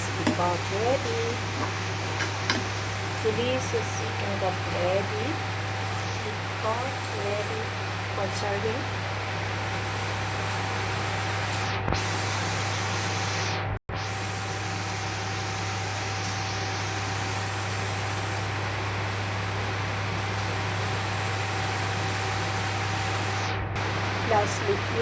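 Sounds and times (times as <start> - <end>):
steady hiss: 0.0 - 11.4, 23.8 - 25.0.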